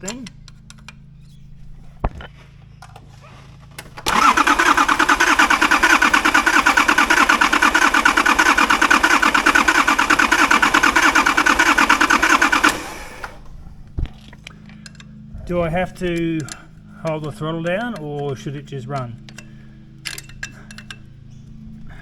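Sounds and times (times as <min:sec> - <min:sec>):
diesel engine cranking: 0:03.8 - 0:14.5.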